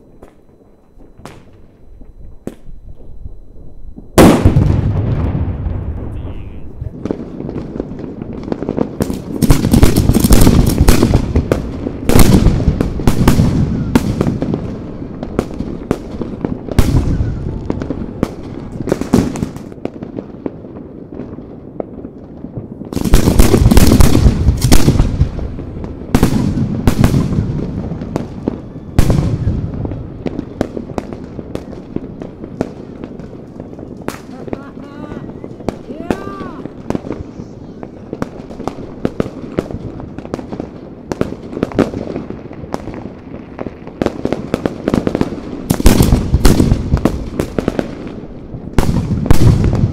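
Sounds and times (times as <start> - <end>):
firework bangs and crackles: 0.0 - 49.9.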